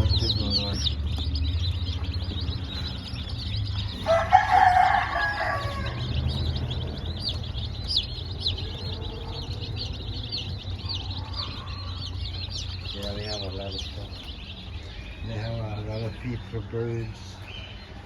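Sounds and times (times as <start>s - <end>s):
chicks peeping: 0.0s - 18.0s
steady low hum: 0.0s - 18.0s
rooster crowing: 3.8s - 12.6s.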